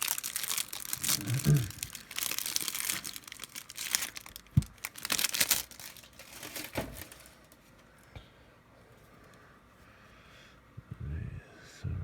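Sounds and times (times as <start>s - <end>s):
plastic wrapping crinkling and tearing: 0.0s - 7.8s.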